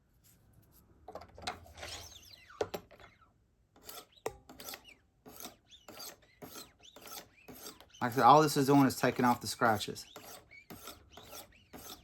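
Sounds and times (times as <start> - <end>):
sharpening stone scraping knife: 3.8 - 12.0.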